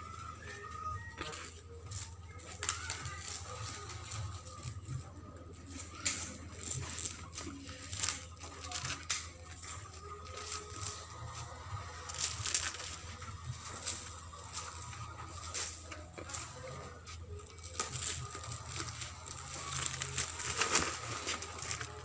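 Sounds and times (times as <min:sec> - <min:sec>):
mattress material rustling and tearing: 0:06.6 - 0:22.0.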